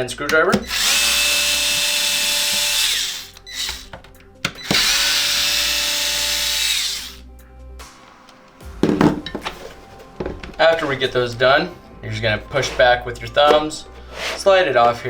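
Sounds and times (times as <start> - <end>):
electric screwdriver running: 0.6 - 4.0, 4.6 - 7.2.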